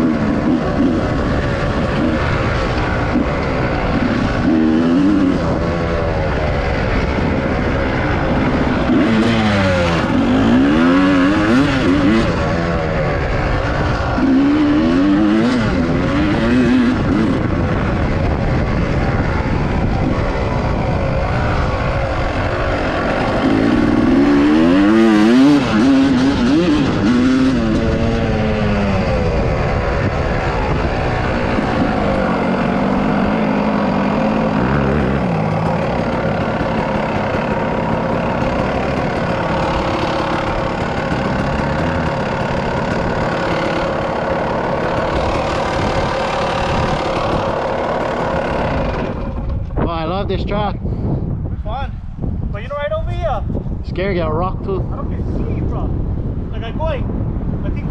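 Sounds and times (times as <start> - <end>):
dirt bike engine revving: 0.0 - 50.8.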